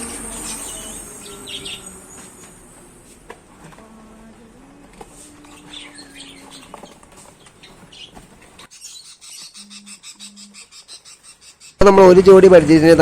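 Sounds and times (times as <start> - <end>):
caged birds chirping: 0.0 - 2.8, 5.4 - 12.4
low background hum: 0.0 - 8.8.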